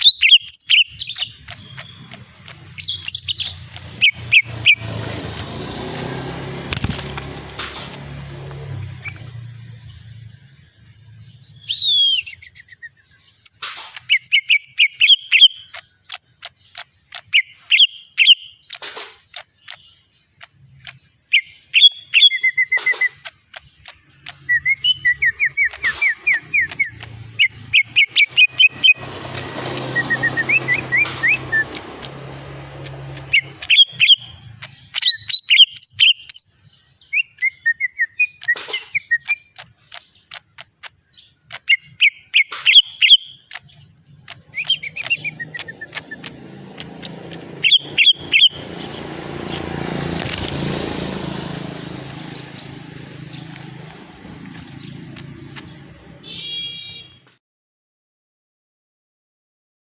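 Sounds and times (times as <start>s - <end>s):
bird chirps whistles and trills: 0.0s - 5.0s, 9.0s - 49.7s.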